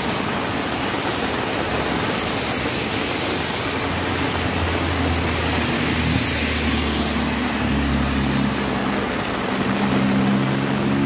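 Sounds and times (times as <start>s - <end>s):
heavy rain hissing: 0.0s - 11.0s
passing vehicle engine droning: 3.7s - 11.0s.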